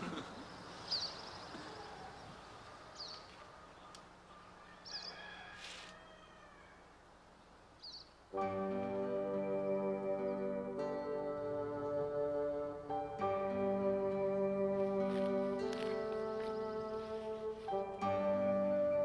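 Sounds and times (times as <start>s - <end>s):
small bird chirping: 0.6s - 5.2s, 7.8s - 8.2s.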